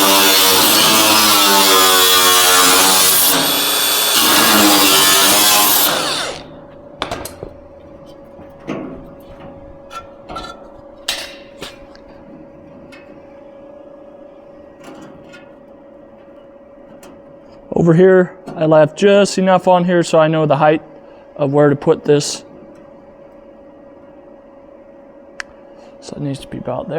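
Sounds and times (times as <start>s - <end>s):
power cutting tool on sheet metal: 0.0s - 6.6s
faint steady hum: 0.0s - 26.9s
metal knocks and taps: 7.0s - 12.2s.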